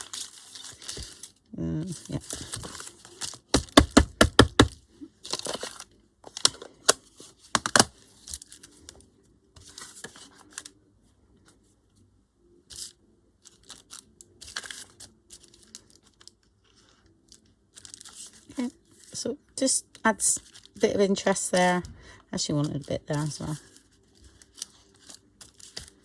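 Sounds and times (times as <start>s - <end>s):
paper rustling: 0.0s - 3.6s, 4.5s - 8.9s, 9.6s - 10.7s, 12.7s - 19.2s, 22.6s - 26.0s
sharp stamping taps: 3.5s - 4.7s.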